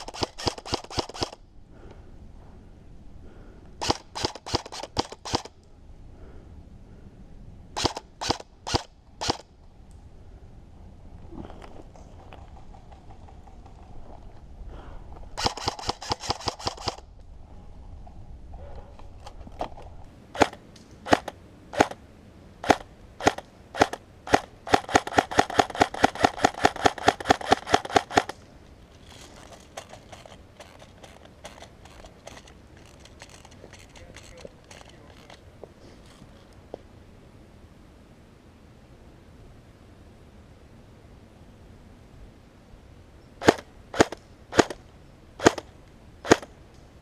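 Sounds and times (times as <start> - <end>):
airsoft gun full-auto bursts: 0.0 - 1.4, 3.8 - 5.5, 7.8 - 9.4, 15.4 - 17.0, 22.6 - 28.4, 43.4 - 44.8, 45.4 - 45.6, 46.2 - 46.5
gun mechanism whirring: 0.0 - 1.4, 3.8 - 5.5, 15.4 - 17.0, 22.6 - 28.4, 29.0 - 35.4
airsoft gun single shots: 43.4 - 44.8.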